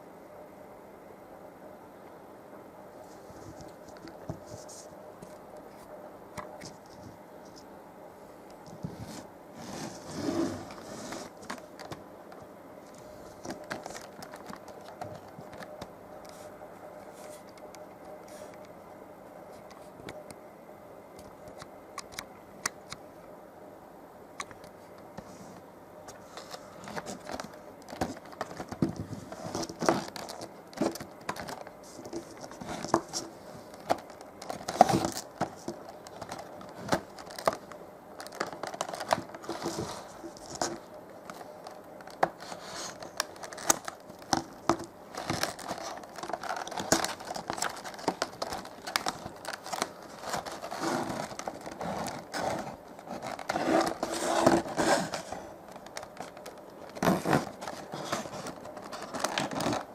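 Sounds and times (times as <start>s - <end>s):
packaging crinkling and tearing: 13.4s - 15.9s, 26.4s - 59.9s
small clicks and scrapes: 24.4s - 59.9s.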